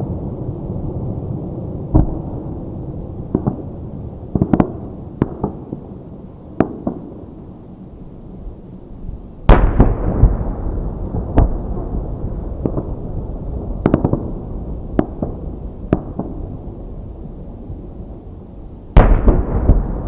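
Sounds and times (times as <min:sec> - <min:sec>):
firework cracks and pops: 0:09.5 - 0:16.8, 0:19.0 - 0:20.0.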